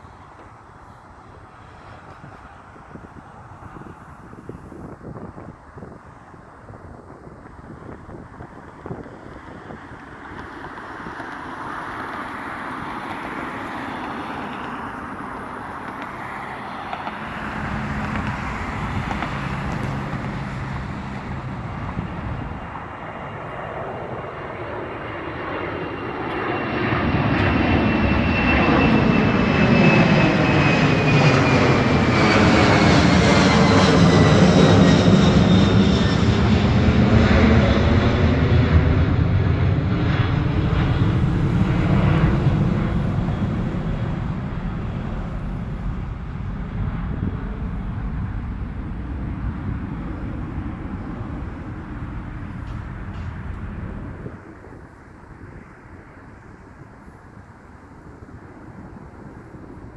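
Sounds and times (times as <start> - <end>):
jet airliner passing: 0.0 - 59.9.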